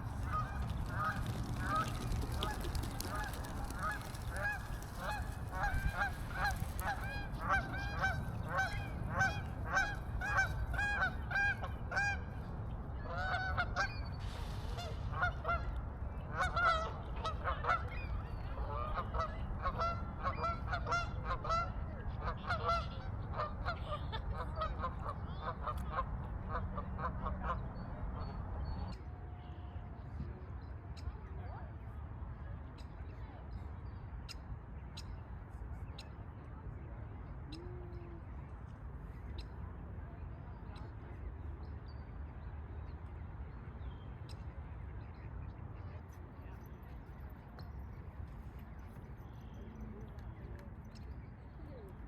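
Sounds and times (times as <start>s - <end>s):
geese honking: 0.0s - 12.3s.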